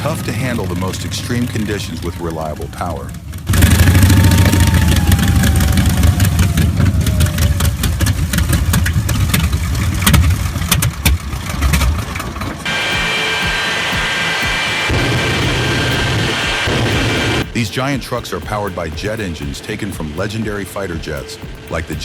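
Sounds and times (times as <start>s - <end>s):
radial engine running loud: 0.0s - 8.8s, 12.6s - 17.6s
high-pitched whine: 2.2s - 8.5s, 12.7s - 22.0s.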